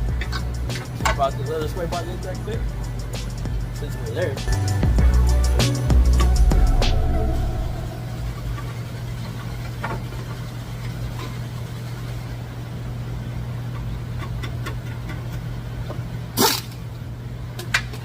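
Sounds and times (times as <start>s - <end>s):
car engine humming: 0.0s - 9.8s.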